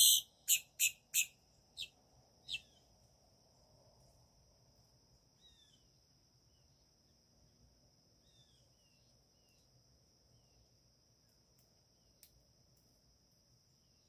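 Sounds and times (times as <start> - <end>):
bird calling: 0.0 - 1.9, 2.5 - 2.8
faint chirps: 0.0 - 3.0, 5.2 - 7.2, 8.1 - 10.8.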